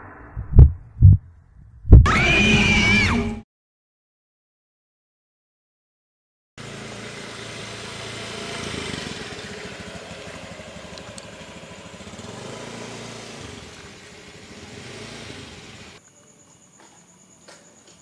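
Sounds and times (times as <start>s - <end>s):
engine running: 6.6s - 16.0s.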